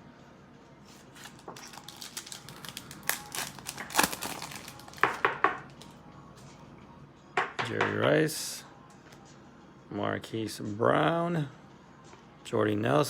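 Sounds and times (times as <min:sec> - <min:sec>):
cards and foil wrapper crinkling: 0:00.9 - 0:06.0.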